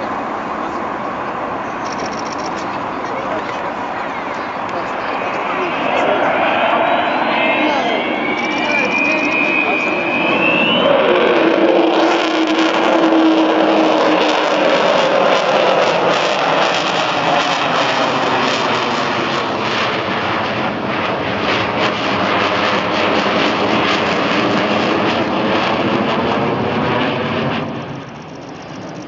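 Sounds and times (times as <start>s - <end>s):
jet bomber roaring in flight: 0.0s - 29.0s.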